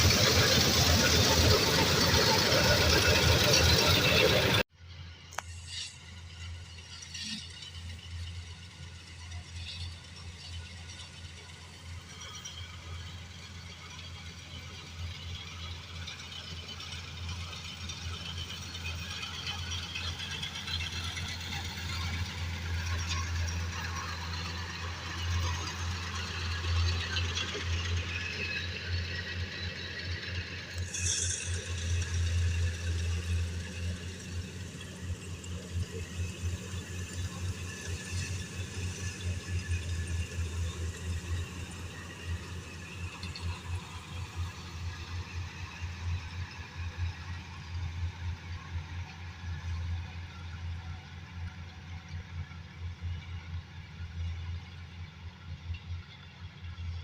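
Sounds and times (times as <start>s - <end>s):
combine harvester engine hum: 0.0s - 57.0s.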